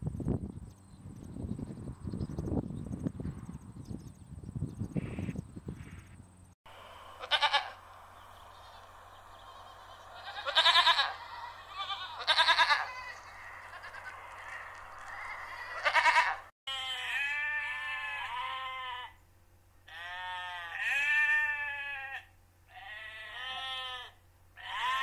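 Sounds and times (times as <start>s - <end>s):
sheep bleating: 7.2s - 7.8s, 8.6s - 19.2s, 19.9s - 25.0s.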